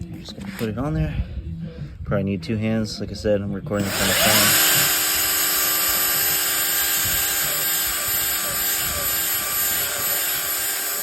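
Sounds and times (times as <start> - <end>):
drill motor whine: 3.8 - 11.0.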